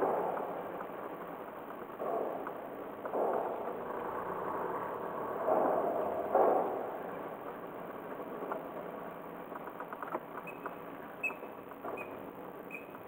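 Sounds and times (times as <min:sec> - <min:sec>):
short high squeaks: 0:10.4 - 0:13.0.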